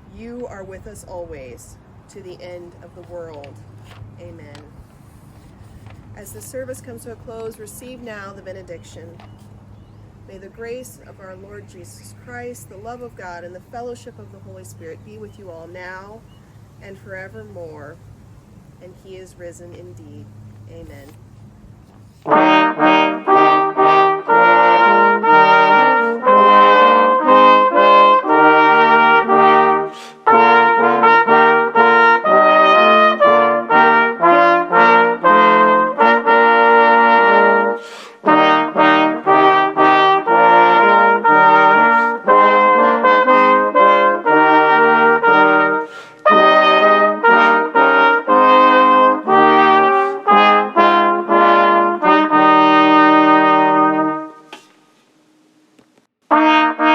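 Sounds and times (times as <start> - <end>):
brass ensemble playing: 22.2 - 54.5, 56.2 - 56.9.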